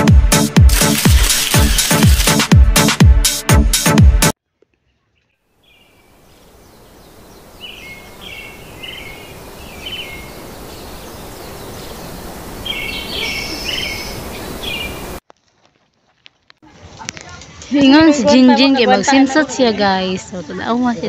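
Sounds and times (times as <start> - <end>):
small birds chirping: 4.5 - 15.2
steady outdoor hiss: 5.4 - 15.2.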